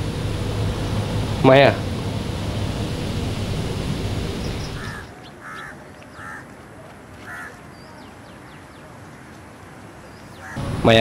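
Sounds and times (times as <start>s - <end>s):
background rumble: 0.0s - 5.1s
bird calls: 2.9s - 6.5s, 7.2s - 10.8s.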